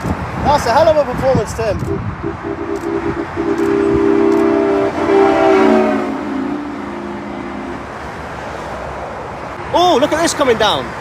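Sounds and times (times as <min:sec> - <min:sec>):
motorway traffic noise: 0:00.0 - 0:11.0
truck air horn chord: 0:01.9 - 0:08.0.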